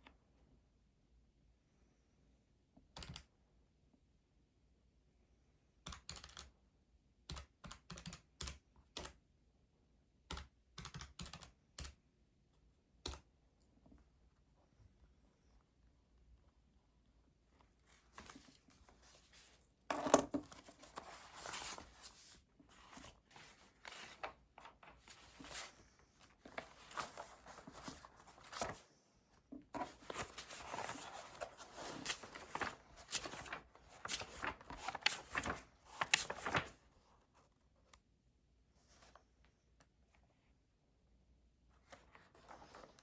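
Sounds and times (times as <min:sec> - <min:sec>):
paper rustling and crinkling: 0:17.9 - 0:29.0, 0:29.6 - 0:37.0, 0:41.9 - 0:43.0.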